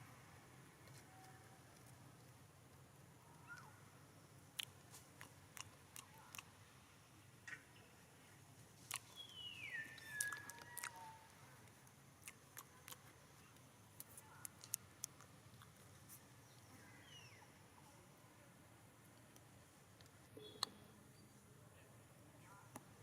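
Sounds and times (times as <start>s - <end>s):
monkey chewing food: 4.5s - 6.7s, 8.6s - 16.4s.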